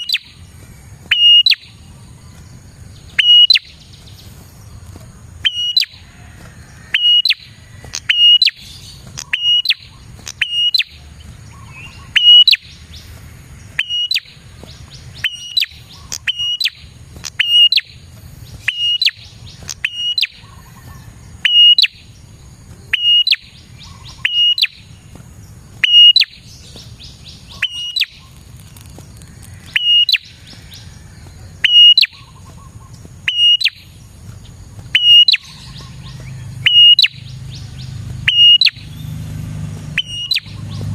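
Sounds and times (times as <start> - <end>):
bird chirping sharply: 0.0 - 4.5, 5.4 - 6.0, 6.9 - 22.2, 22.9 - 28.4, 29.6 - 30.9, 31.6 - 34.0, 34.9 - 39.2, 39.9 - 40.9.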